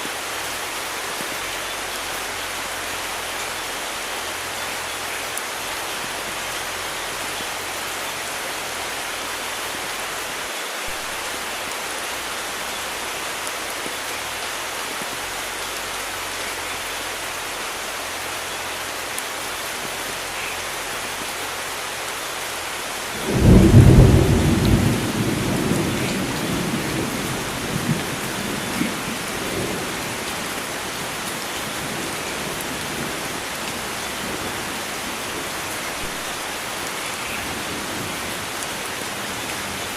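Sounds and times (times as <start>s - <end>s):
heavy rain hissing: 0.0s - 39.9s
thunder rumbling: 23.2s - 36.7s.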